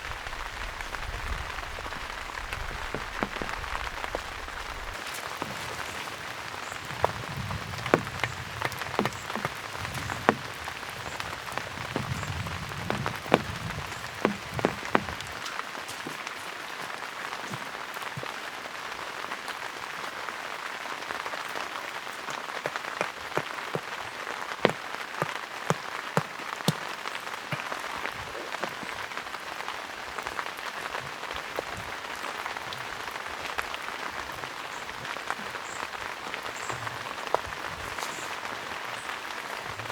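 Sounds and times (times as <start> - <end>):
raindrops ticking: 0.0 - 39.9
steady rain falling: 0.0 - 39.9.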